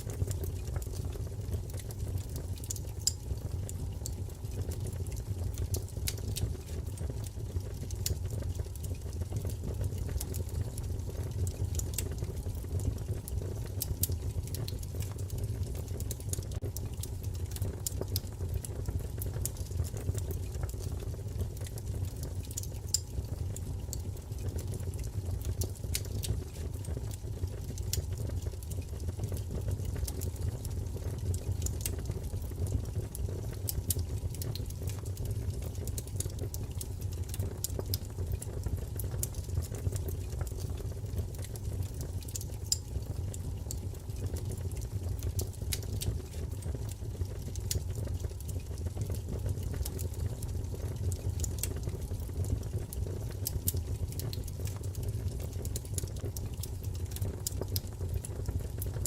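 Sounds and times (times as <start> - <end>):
low roar of flames: 0.0 - 59.0
wood fire crackling: 0.0 - 59.0.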